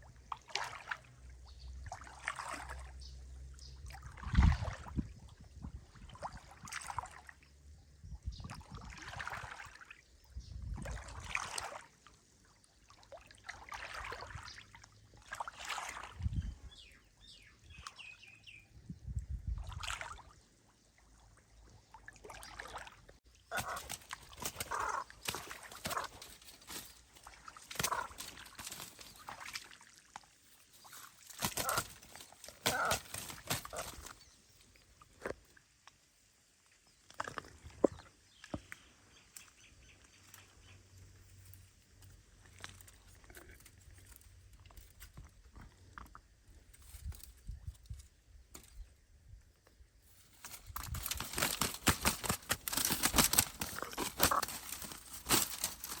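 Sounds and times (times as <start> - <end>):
water trickling and sloshing: 0.0 - 56.0.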